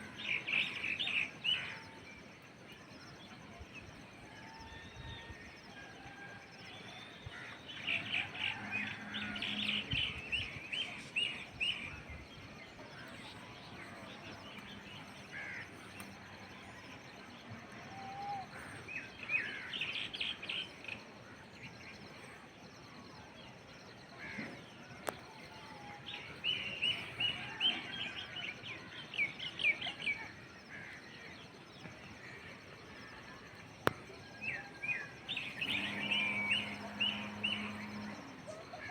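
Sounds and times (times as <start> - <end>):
outdoor background hiss: 0.0 - 38.9
birds chirping: 23.2 - 38.9.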